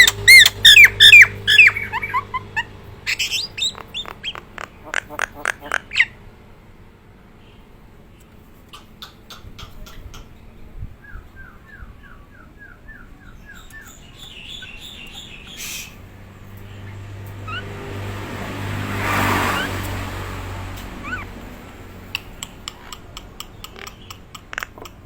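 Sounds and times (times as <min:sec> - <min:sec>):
low hum rising to loud rush: 0:10.8 - 0:22.1.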